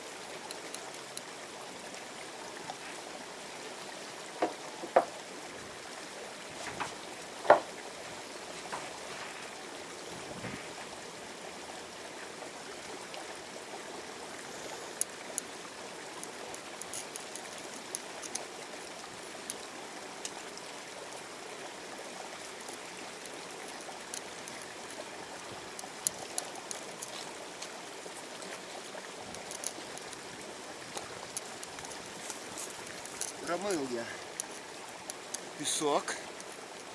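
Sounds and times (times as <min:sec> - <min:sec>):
river water running: 0:00.0 - 0:36.9
sharp knocks: 0:04.4 - 0:05.1, 0:06.6 - 0:07.7
faint high clicks: 0:16.1 - 0:20.7, 0:22.4 - 0:25.0, 0:25.7 - 0:28.7, 0:29.3 - 0:33.5.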